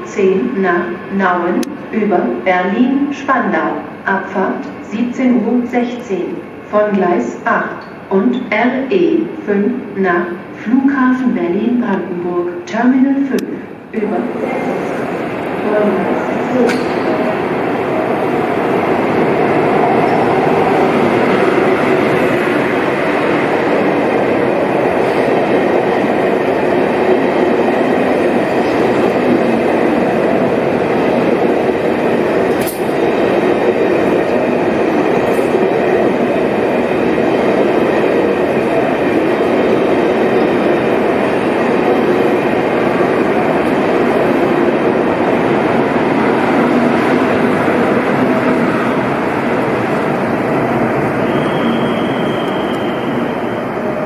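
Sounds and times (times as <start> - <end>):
train wheels rumbling and hissing: 13.4 - 54.0.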